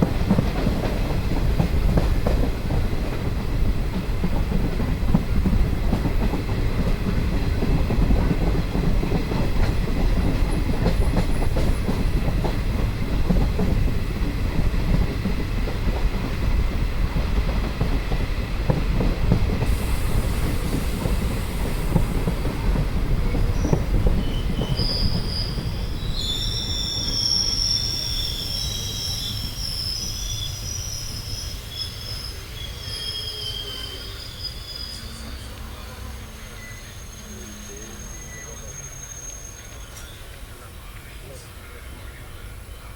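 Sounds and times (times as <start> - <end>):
train rumbling on track: 0.0 - 42.9
high wheel squeal: 23.5 - 40.3.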